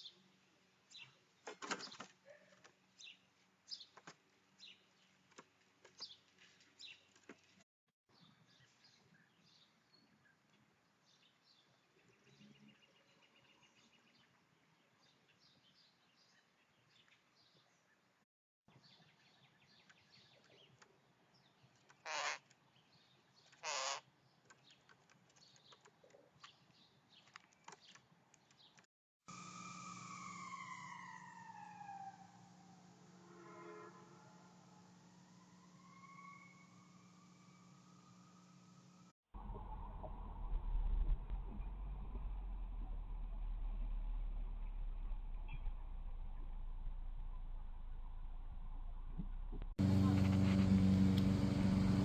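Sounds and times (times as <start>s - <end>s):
small birds chirping: 18.7s - 28.9s.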